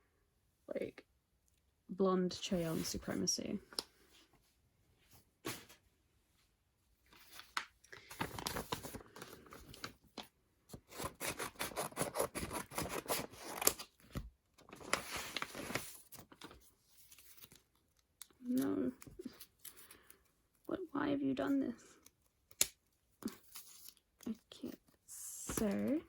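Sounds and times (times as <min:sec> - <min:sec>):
plastic wrapping crinkling and tearing: 0:07.2 - 0:19.8.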